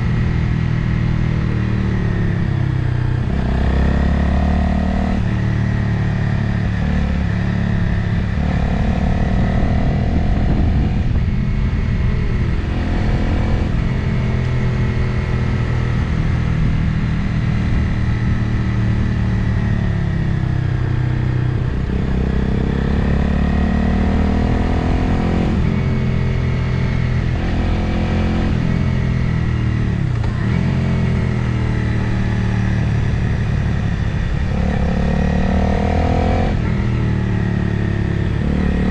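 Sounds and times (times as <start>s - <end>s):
motorcycle engine revving: 0.0s - 38.9s
wind noise on microphone: 6.6s - 23.1s.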